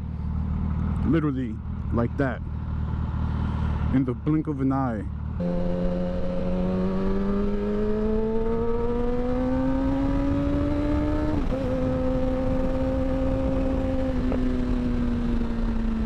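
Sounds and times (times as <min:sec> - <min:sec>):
motorcycle engine accelerating: 0:00.0 - 0:16.0
wind rumble: 0:05.4 - 0:16.0.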